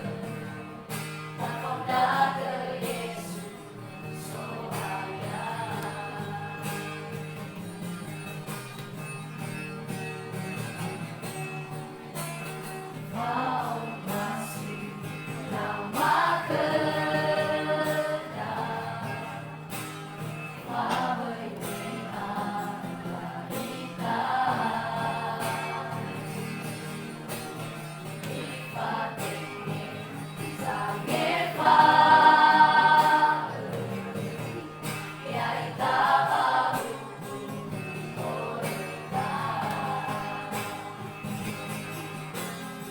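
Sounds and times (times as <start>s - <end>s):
vocal group singing gospel: 0.0s - 7.2s, 13.0s - 27.1s, 28.1s - 41.6s
high sung phrases: 30.6s - 34.3s.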